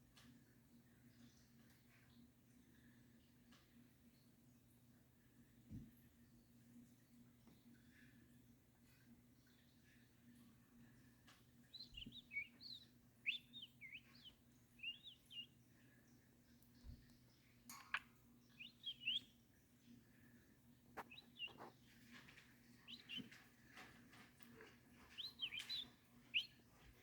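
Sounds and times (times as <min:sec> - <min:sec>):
bird chirping: 0:11.6 - 0:20.2, 0:21.0 - 0:27.0.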